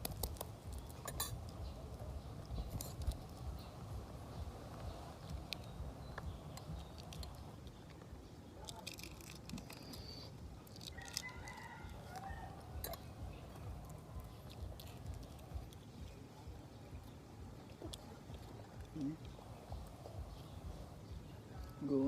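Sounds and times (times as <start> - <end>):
chewing and crunching eggs: 0.0 - 3.6, 5.2 - 20.5
rooster crowing: 10.8 - 13.0.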